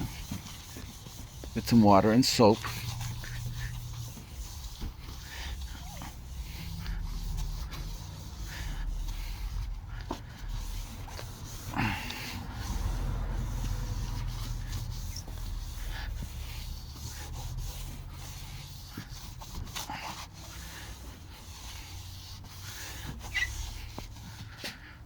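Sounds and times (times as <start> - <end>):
steady low rumble: 0.0 - 18.4
scrubbing plastic with soapy water: 0.0 - 24.9.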